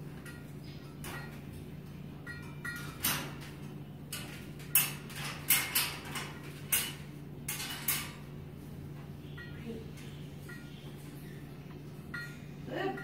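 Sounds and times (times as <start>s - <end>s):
metal cage bars clattering: 0.0s - 8.6s.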